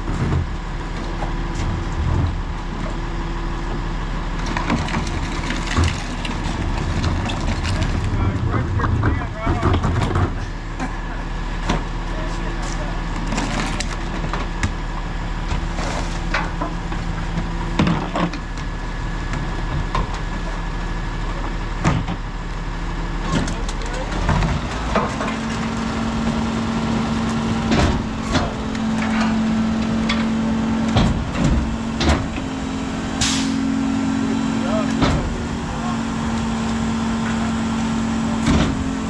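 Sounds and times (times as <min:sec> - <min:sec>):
garbage truck engine running: 0:00.0 - 0:39.0
refuse clanking and knocking: 0:04.4 - 0:11.0, 0:27.6 - 0:32.6, 0:34.8 - 0:39.0.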